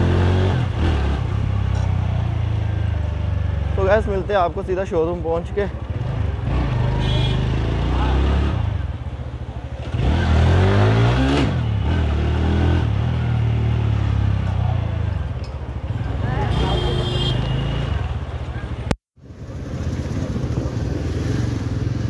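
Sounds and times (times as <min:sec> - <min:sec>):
motorcycle engine running: 0:13.0 - 0:22.0.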